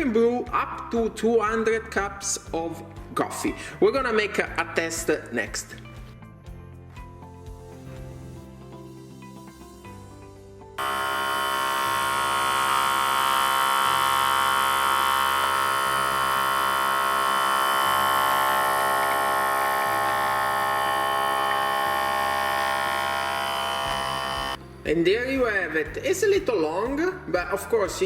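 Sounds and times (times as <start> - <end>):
espresso machine pump buzzing: 10.8 - 24.6.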